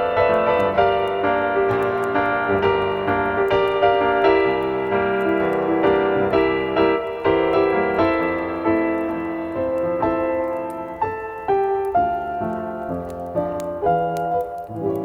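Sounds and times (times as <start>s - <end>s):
soft ambient piano music: 0.0s - 15.0s.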